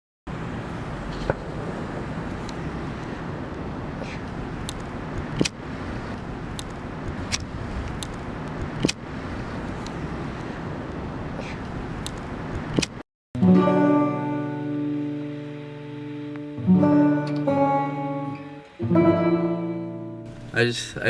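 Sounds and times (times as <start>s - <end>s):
road traffic noise: 0.3s - 21.0s
sharp clicks: 4.6s - 5.6s, 12.0s - 13.0s.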